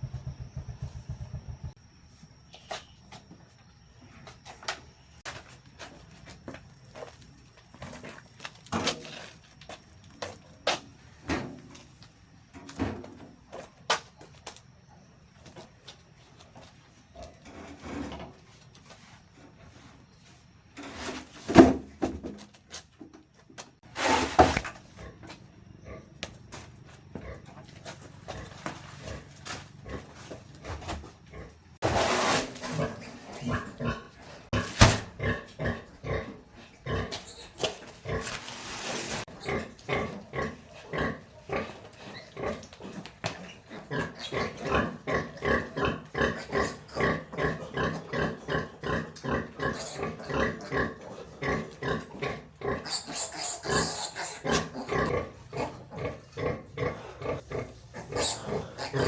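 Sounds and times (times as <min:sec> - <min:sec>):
pigs grunting: 0:32.6 - 0:59.0.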